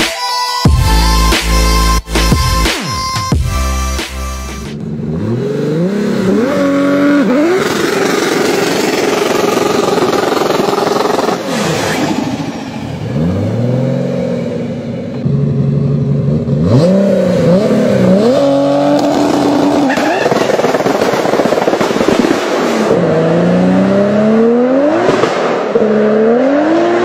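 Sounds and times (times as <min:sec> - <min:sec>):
car engine revving hard: 0:04.8 - 0:14.9, 0:16.3 - 0:27.0
spinning tyres hissing: 0:05.6 - 0:14.5.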